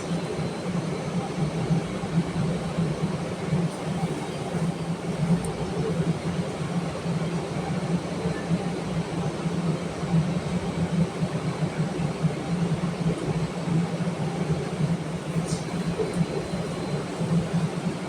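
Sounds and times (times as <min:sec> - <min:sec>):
train car rumbling along track: 0:00.0 - 0:18.0.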